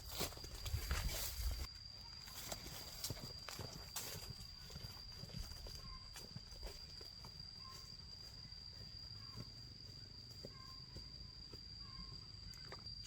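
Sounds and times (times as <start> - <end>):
high-pitched insect drone: 0.0 - 13.0
faint chirps: 4.5 - 13.0.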